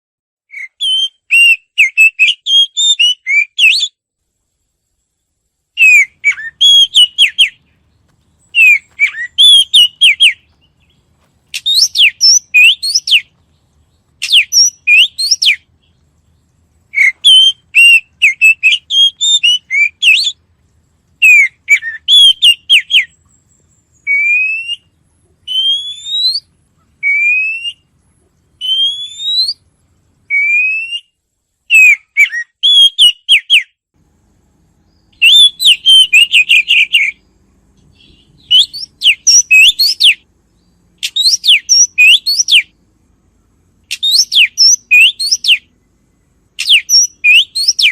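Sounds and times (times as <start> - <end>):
bird whistling rising notes: 0.5 - 4.0, 5.8 - 7.6, 8.4 - 13.4, 14.2 - 15.7, 16.9 - 20.4, 21.2 - 27.9, 28.6 - 29.6, 30.3 - 33.7, 34.8 - 37.2, 38.0 - 40.3, 41.0 - 42.8, 43.9 - 45.7, 46.6 - 47.9
songbird warbling: 5.7 - 31.1, 34.9 - 47.9.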